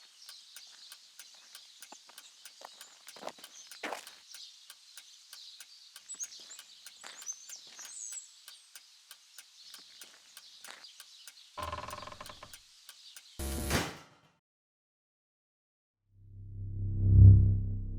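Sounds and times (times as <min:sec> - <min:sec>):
patter of light ticks: 0:00.0 - 0:13.4
small birds chirping: 0:00.0 - 0:13.4.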